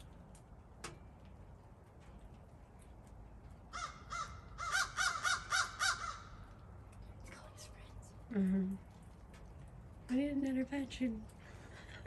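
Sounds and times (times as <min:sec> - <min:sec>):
crow cawing harshly: 0:03.7 - 0:06.4.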